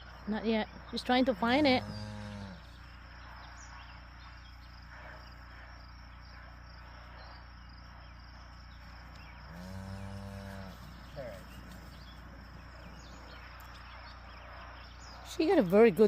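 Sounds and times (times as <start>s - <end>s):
crickets chirping: 0.0s - 16.0s
cow mooing: 1.5s - 2.8s, 9.5s - 11.5s.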